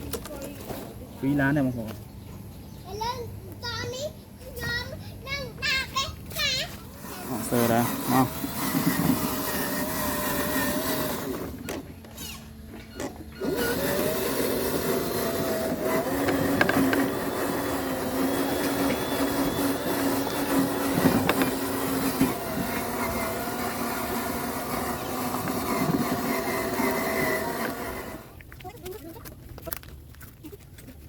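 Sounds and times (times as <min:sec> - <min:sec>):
electric motor whining: 0:06.8 - 0:28.4.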